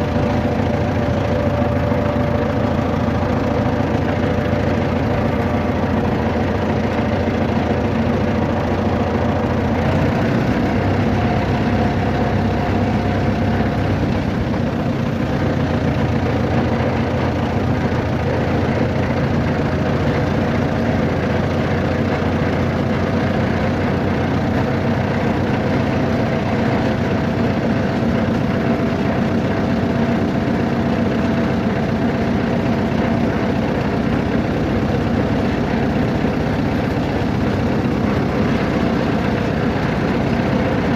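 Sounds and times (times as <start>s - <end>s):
vehicle engine rumbling: 0.0s - 40.9s.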